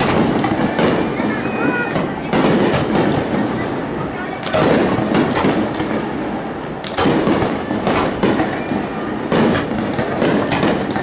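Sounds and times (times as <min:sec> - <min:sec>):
fireworks booming: 0:00.0 - 0:11.0
fireworks crackling: 0:00.0 - 0:11.0.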